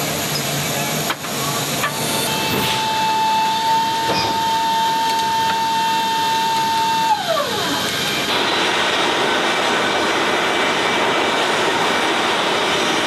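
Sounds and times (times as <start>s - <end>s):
aircraft noise: 0.0s - 13.0s
high whine sliding down: 1.5s - 13.0s.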